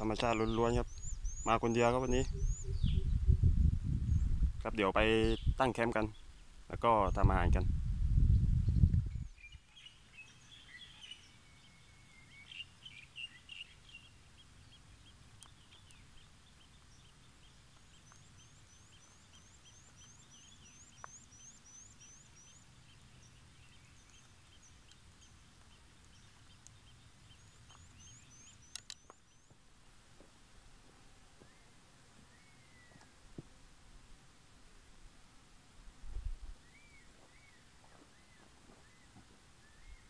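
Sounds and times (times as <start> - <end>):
bird repeating high call: 0.3 - 3.2
sharp clicks: 28.6 - 29.2.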